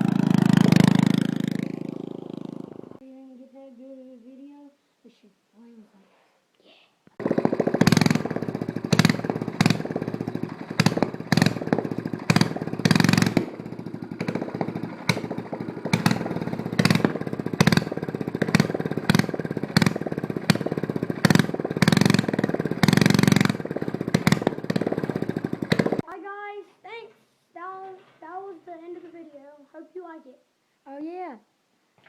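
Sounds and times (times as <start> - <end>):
small engine idling with popping exhaust: 0.0 - 3.0, 7.2 - 26.1
small engine revving: 0.0 - 3.0, 7.2 - 26.0.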